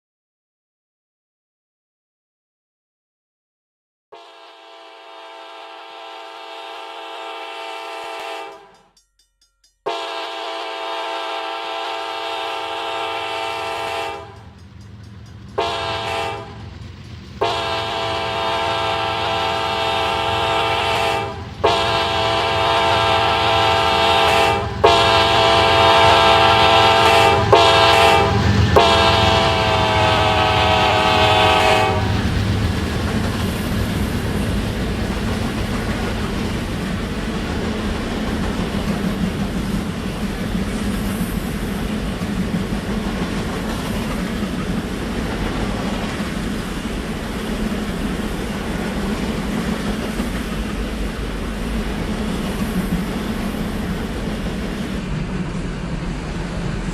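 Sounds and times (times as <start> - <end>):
locomotive air horn blasts: 4.1 - 8.8, 9.9 - 14.5, 15.6 - 16.6, 17.4 - 32.2
train rumbling: 9.8 - 56.9.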